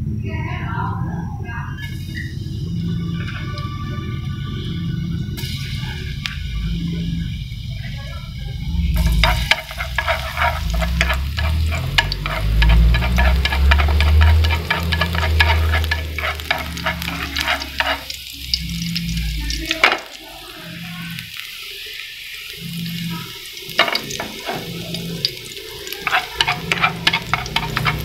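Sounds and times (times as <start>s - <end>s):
food frying in hot oil: 5.4s - 28.0s.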